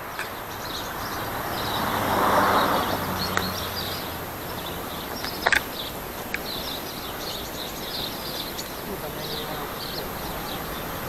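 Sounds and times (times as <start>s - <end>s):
small birds chirping: 0.0s - 11.0s
sharp clicks: 5.1s - 6.6s.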